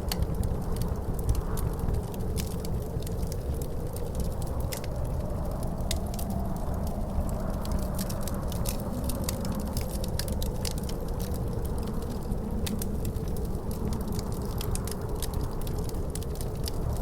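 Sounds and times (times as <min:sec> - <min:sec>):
wind rumbling and howling: 0:00.0 - 0:17.0
wood fire crackling: 0:00.0 - 0:17.0.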